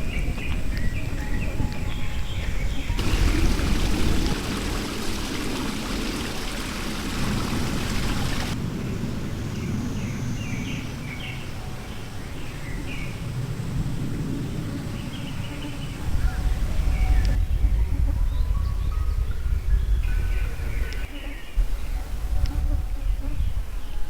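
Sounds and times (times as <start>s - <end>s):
steady rushing hiss: 3.0s - 9.5s.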